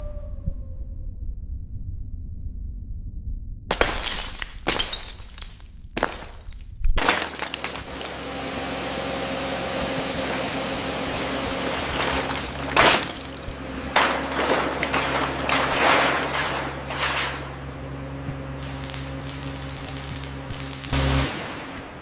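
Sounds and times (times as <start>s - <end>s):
sharp crashes: 11.6s - 17.6s.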